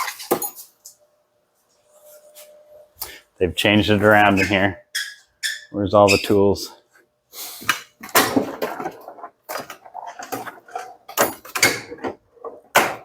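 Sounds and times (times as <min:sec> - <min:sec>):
drawers opening and shutting: 0:08.0 - 0:13.0
metal tools clattering: 0:08.3 - 0:12.2.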